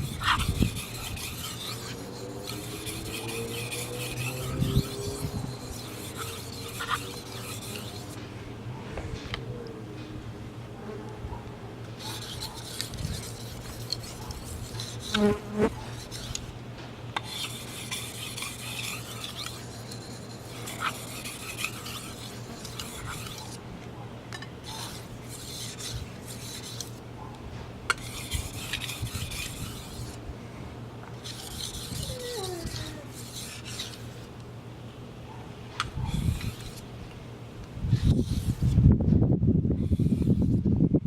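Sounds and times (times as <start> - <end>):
knife scraping on whetstone: 0.0 - 8.2, 12.0 - 16.5, 17.2 - 23.6, 24.6 - 27.0, 27.9 - 30.2, 31.2 - 34.3, 36.0 - 36.8, 38.0 - 38.7, 39.8 - 40.6.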